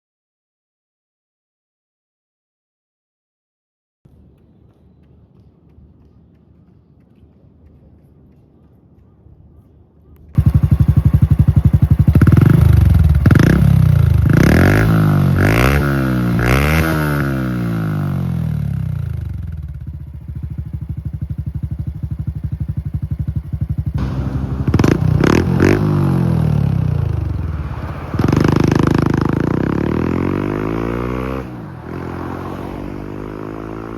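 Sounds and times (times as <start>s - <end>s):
motorcycle engine revving and idling: 10.4s - 33.9s.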